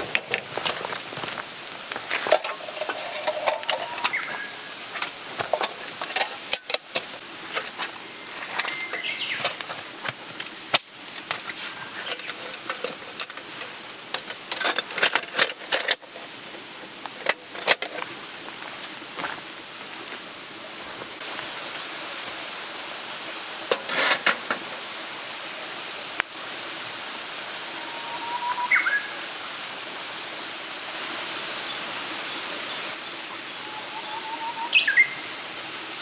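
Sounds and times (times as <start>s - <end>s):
food sizzling: 0.0s - 15.0s, 20.8s - 30.1s.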